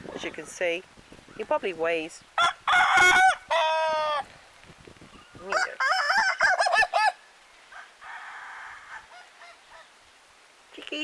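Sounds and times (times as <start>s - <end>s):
rooster laughing crow: 2.4s - 4.2s, 5.5s - 7.2s.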